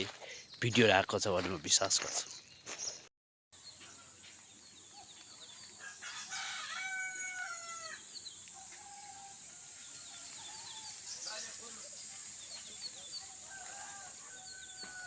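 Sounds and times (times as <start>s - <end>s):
rooster crowing: 5.8s - 8.0s, 8.6s - 10.9s, 13.4s - 15.0s
steady high hiss: 7.4s - 14.3s.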